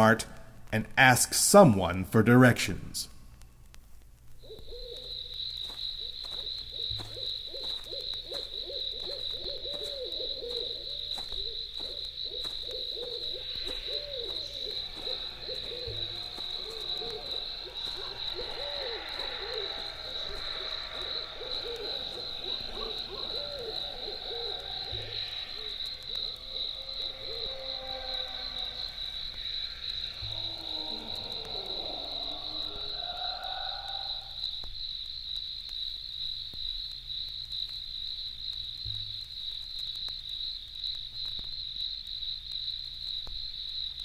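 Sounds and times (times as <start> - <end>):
owl hoots: 4.4 - 34.6
cricket trill: 4.4 - 44.0.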